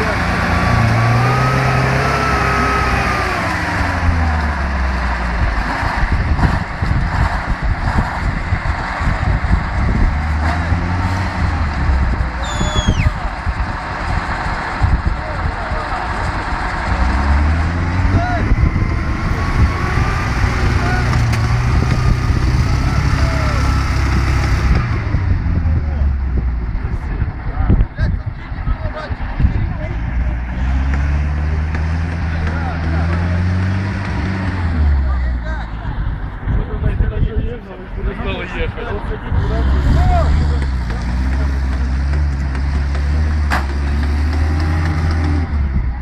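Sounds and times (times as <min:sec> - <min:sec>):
off-road vehicle engine running: 0:00.0 - 0:46.0
uneven rumbling noise: 0:00.0 - 0:46.0
faint voices: 0:12.1 - 0:17.4, 0:34.9 - 0:42.1.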